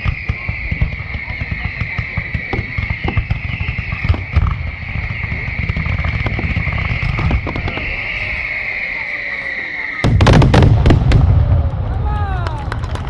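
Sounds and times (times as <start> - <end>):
fireworks crackling and banging: 0.0 - 13.0
low rumble of booms: 10.0 - 13.0.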